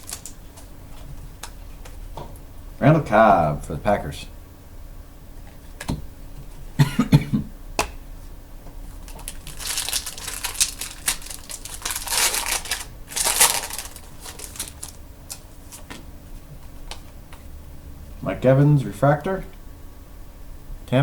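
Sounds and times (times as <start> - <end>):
foil wrapper crinkling: 0.0 - 0.4, 8.9 - 15.5.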